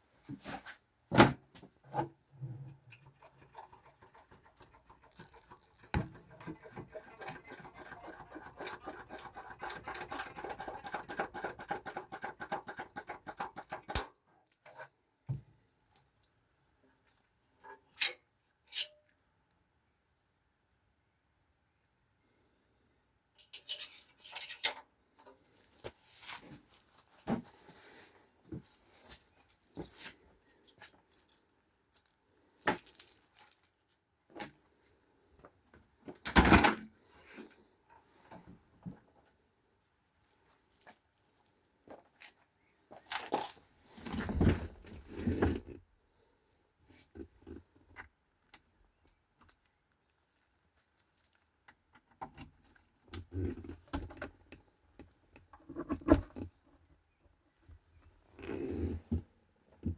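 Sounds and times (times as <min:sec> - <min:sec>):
keys jingling: 0:30.7 - 0:33.7.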